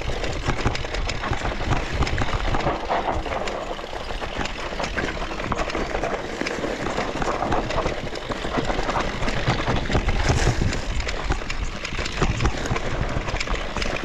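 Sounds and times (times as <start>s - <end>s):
bike clicks and rattles: 0.0s - 14.0s
bike tyres rumbling over ground: 0.0s - 14.0s
wind on microphone: 7.1s - 11.5s.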